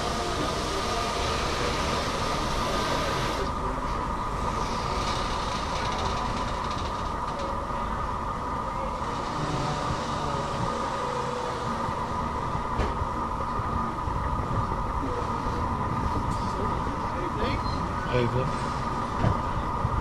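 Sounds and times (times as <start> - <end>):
hiss: 0.0 - 3.5
steady whine: 0.0 - 20.0
train wheels rumbling on rail: 0.0 - 20.0.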